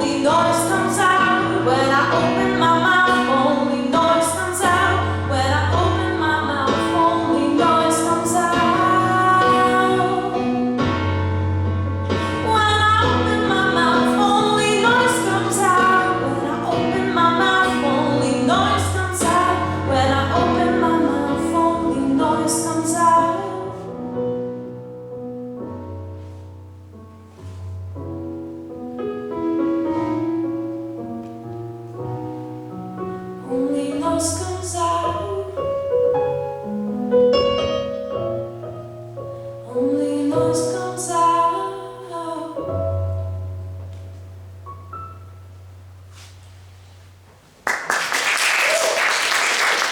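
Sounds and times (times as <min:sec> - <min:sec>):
woman singing a pop ballad: 0:00.0 - 0:11.1, 0:12.1 - 0:24.0, 0:33.4 - 0:35.8, 0:39.6 - 0:43.1
piano accompaniment: 0:00.0 - 0:49.9.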